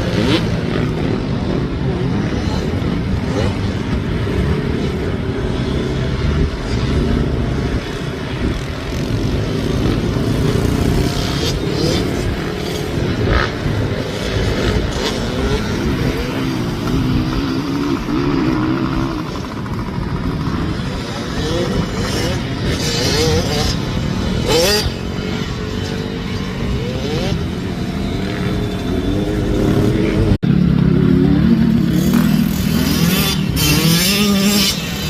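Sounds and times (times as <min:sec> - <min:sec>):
motocross bike engines revving: 0:00.0 - 0:35.0.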